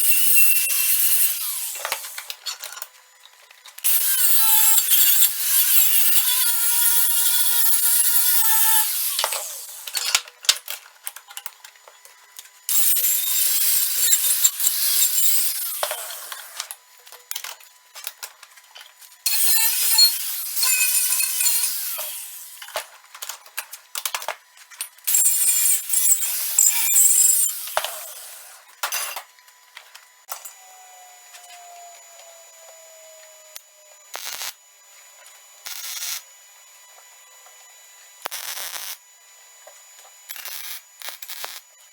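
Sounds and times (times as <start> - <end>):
welder buzzing: 0.0 - 2.4, 3.8 - 10.0, 12.7 - 16.8, 19.2 - 22.9, 25.0 - 28.7, 30.3 - 34.6, 35.6 - 36.3, 38.2 - 39.0, 40.3 - 41.7.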